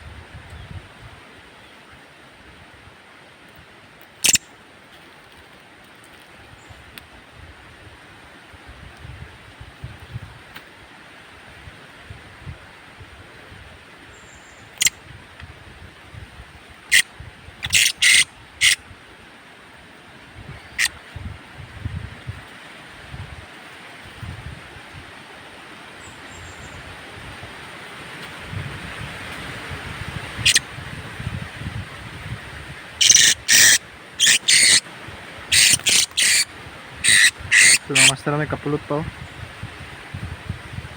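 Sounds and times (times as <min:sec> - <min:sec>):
wind noise on microphone: 0:00.0 - 0:01.7, 0:06.4 - 0:19.3, 0:20.2 - 0:40.9
parrot shrill calls: 0:04.2 - 0:04.4, 0:16.9 - 0:18.8, 0:30.4 - 0:30.6, 0:33.0 - 0:34.8, 0:35.5 - 0:38.2.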